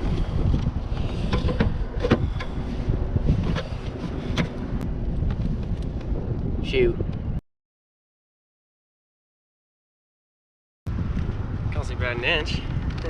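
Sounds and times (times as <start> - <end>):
gear knocks and clicks: 0.0 - 2.7, 3.3 - 6.1, 12.7 - 13.0
wind buffeting microphone: 0.0 - 7.4, 10.9 - 13.0.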